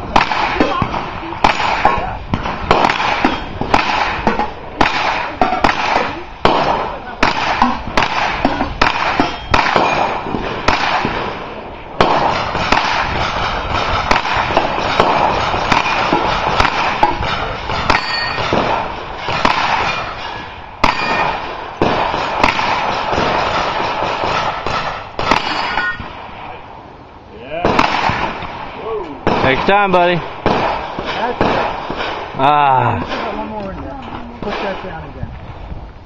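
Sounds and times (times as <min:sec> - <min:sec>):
gunshots: 0:00.0 - 0:26.6, 0:27.6 - 0:32.4, 0:34.4 - 0:35.0
steel target ringing: 0:08.6 - 0:10.3, 0:14.9 - 0:21.4, 0:25.3 - 0:26.1.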